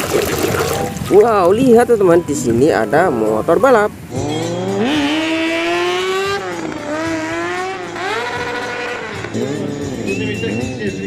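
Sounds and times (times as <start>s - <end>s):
motorcycle engine revving: 3.9s - 11.0s.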